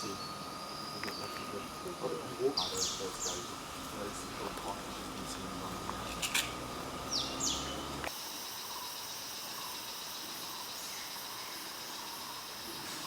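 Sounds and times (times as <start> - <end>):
high-pitched insect drone: 0.0 - 13.0
faint chirps: 7.0 - 13.0.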